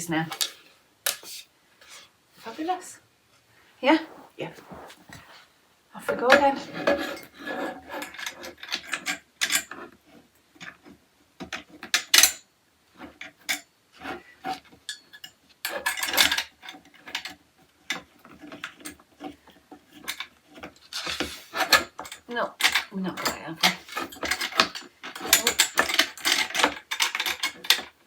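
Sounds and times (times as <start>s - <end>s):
metal parts clicking and scraping: 20.0s - 28.0s.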